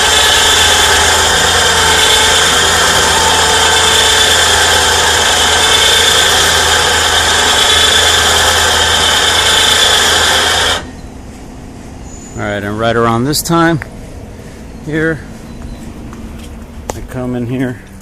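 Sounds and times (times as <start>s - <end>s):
electric winch whining: 0.0s - 11.2s.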